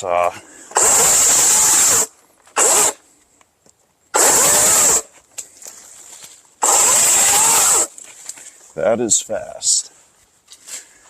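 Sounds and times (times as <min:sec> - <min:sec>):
electric chainsaw revving: 0:00.7 - 0:03.0, 0:04.2 - 0:05.1, 0:06.6 - 0:07.9.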